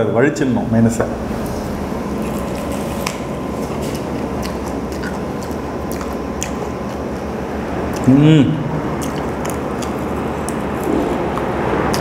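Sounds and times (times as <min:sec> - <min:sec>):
steady background noise: 0:00.0 - 0:12.0
crunching fried chicken: 0:02.2 - 0:08.2, 0:08.8 - 0:12.0.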